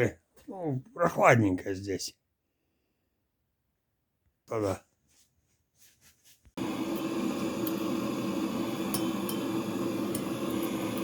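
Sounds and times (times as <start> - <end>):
gas burner roaring: 6.6 - 11.0.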